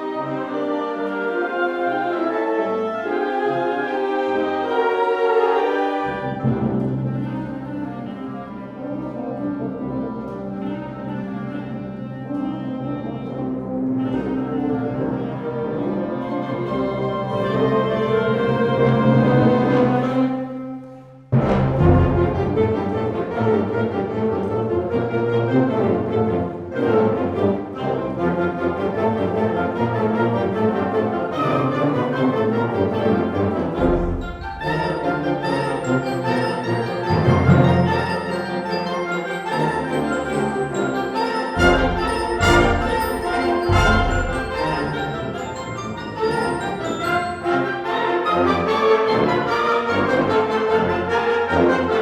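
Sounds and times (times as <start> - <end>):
concert band playing: 40.3 - 47.0.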